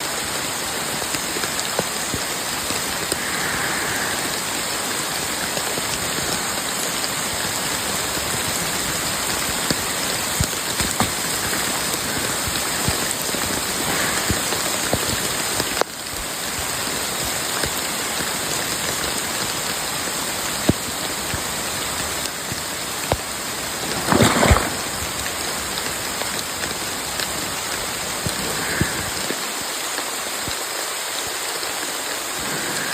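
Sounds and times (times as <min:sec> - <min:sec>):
raindrops pattering: 0:00.0 - 0:32.9
steady rain hiss: 0:00.0 - 0:32.9.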